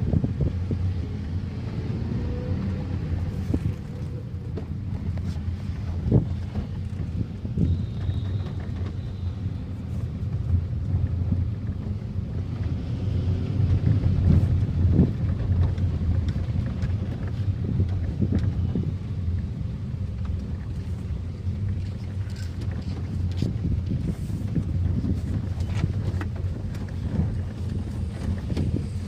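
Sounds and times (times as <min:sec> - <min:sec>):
car engine running: 0:00.0 - 0:29.0
wind buffeting microphone: 0:00.0 - 0:29.0.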